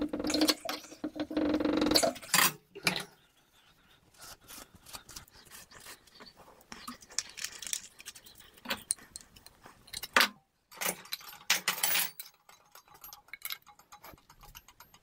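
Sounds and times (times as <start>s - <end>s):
metal fittings clicking and clinking: 6.8s - 15.0s.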